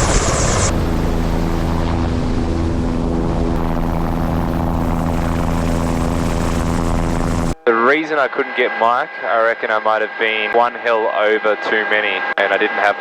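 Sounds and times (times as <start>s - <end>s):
helicopter running: 0.0s - 7.8s.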